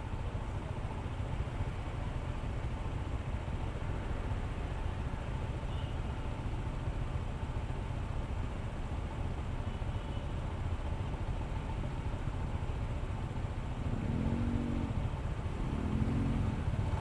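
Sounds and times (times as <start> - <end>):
road rumble: 10.9 - 17.0.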